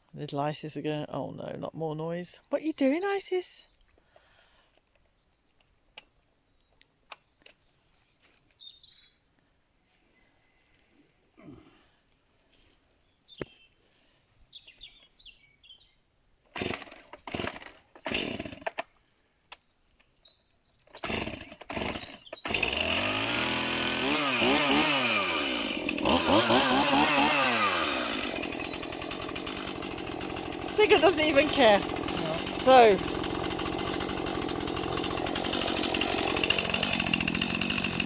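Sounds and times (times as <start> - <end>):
small birds chirping: 2.1 - 4.2, 6.5 - 10.8, 12.2 - 16.1, 19.3 - 22.5, 28.4 - 29.0, 30.3 - 31.8
chainsaw starting and revving: 16.5 - 19.0, 20.9 - 38.0.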